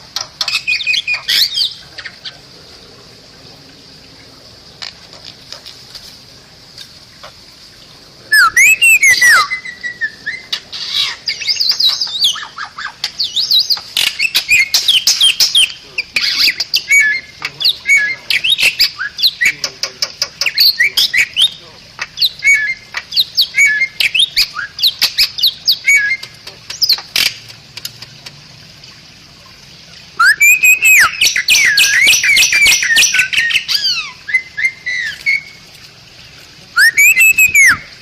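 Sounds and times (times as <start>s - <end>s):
whistled chatter and squawks: 0.0s - 2.6s, 8.2s - 27.3s, 30.1s - 35.6s, 36.6s - 38.0s
myna whistles and clicks: 36.8s - 37.9s.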